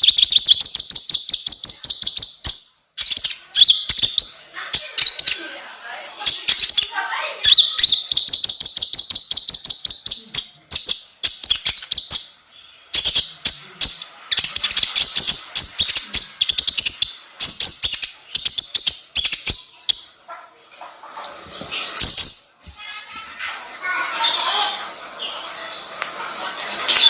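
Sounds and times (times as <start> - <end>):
songbird chirping: 0.0 - 27.0.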